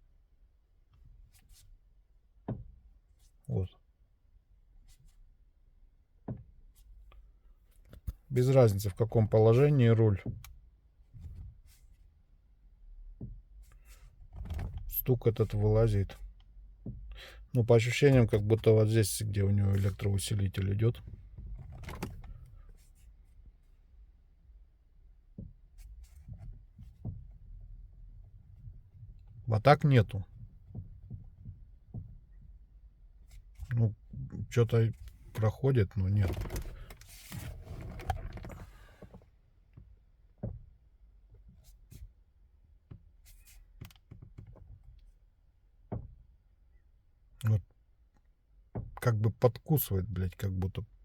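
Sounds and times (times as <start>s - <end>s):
steering wheel rubbing: 8.0s - 10.5s, 13.2s - 16.1s, 17.6s - 23.2s, 34.4s - 39.2s.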